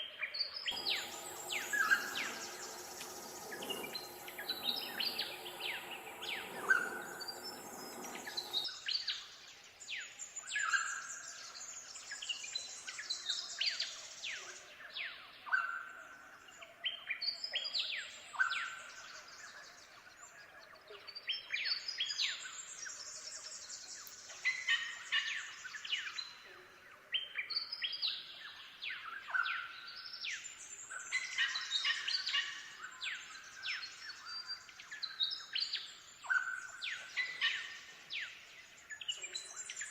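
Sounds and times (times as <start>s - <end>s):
birds chirping: 0.7s - 8.7s
low steady humming tone: 0.8s - 8.7s.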